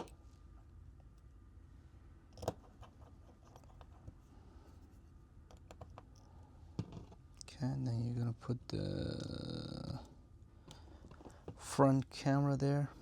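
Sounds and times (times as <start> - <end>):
low room hum: 0.0 - 13.0
small parts clicking and tapping: 2.3 - 4.2, 5.4 - 7.5.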